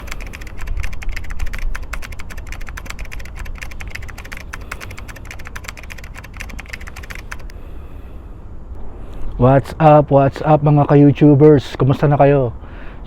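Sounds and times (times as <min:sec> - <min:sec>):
rapid keyboard typing: 0:00.0 - 0:07.5.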